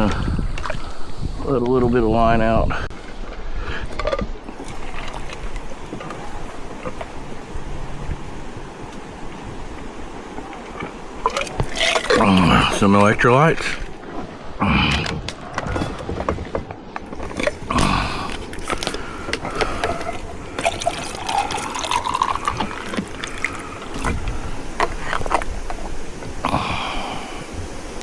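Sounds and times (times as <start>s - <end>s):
liquid pouring into bottle: 11.2s - 12.8s, 19.5s - 24.4s.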